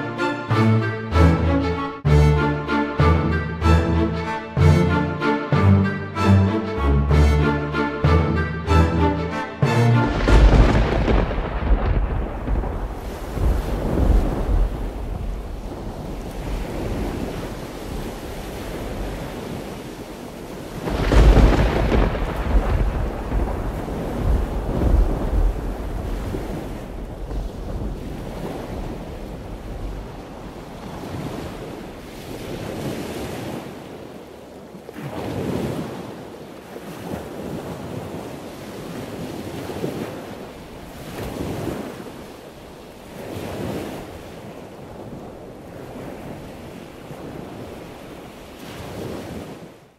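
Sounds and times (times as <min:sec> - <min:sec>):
ocean surf washing: 0:00.0 - 0:49.9
low rumble: 0:06.4 - 0:15.8.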